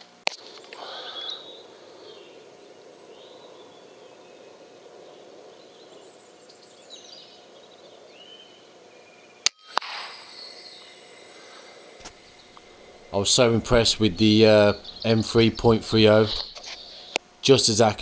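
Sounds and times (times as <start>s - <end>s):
faint outdoor background noise: 0.0s - 9.5s, 10.1s - 18.0s
faint chirps: 12.0s - 18.0s.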